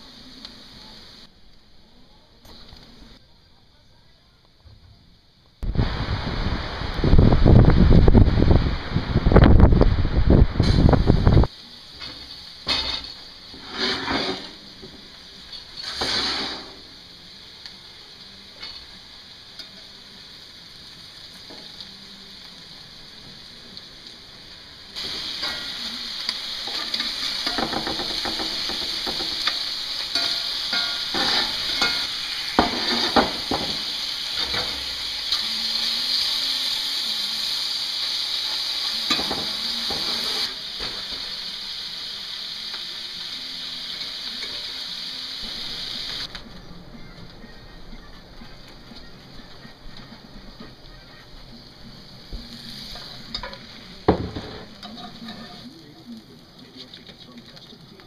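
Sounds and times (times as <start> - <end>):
potatoes sizzling in skillet: 0.0 - 1.3, 5.6 - 58.0
spatula scraping: 12.7 - 14.7, 15.5 - 16.8, 29.1 - 33.5.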